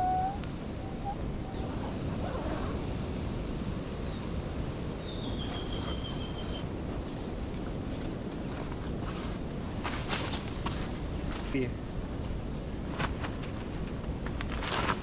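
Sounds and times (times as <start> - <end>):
high whistled bird calls: 0.0 - 2.0, 3.0 - 4.2, 5.0 - 6.6
wind: 0.0 - 15.0.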